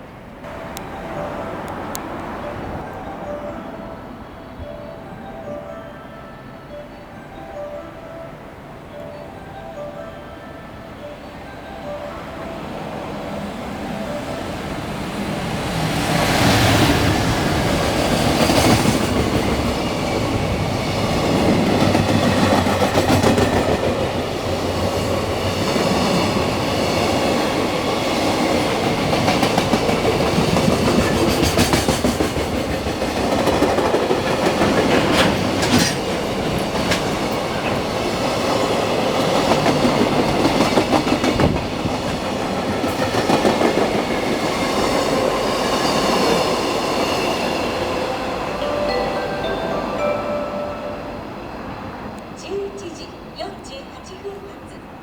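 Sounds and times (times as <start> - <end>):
freight train wheels clicking: 14.6 - 50.2.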